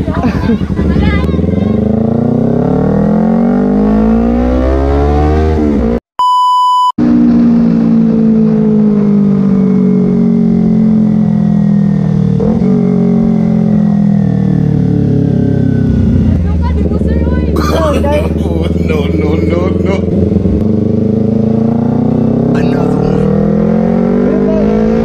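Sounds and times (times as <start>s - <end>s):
motorcycle engine accelerating: 0.0s - 6.0s, 7.0s - 25.0s
electronic beep: 6.2s - 7.0s.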